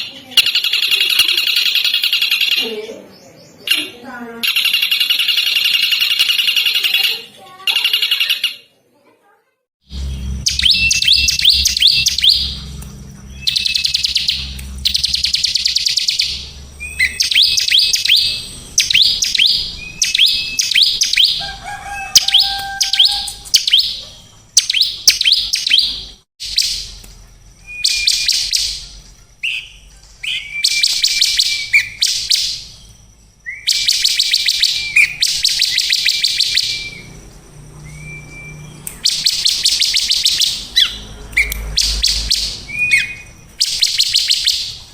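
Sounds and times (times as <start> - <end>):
songbird trilling: 0.0 - 8.7, 9.9 - 44.9
bird whistle: 10.0 - 27.0, 27.6 - 37.1, 37.8 - 44.9.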